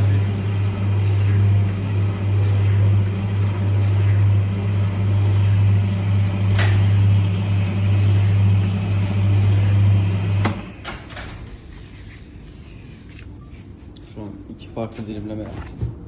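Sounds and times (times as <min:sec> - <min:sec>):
slicing machine motor humming: 0:00.0 - 0:11.2.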